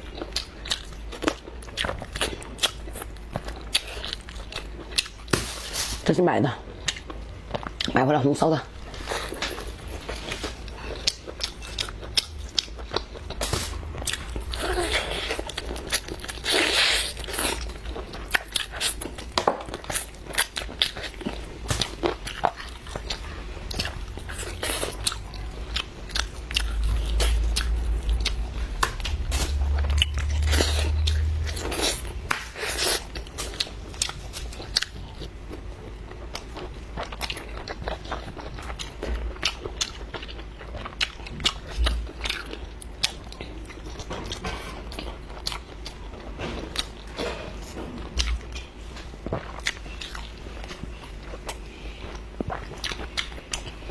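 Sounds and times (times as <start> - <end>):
person chewing crunchy food: 0.0 - 5.5, 6.7 - 8.0, 8.8 - 53.9
low rumble: 10.7 - 16.4, 22.7 - 33.3.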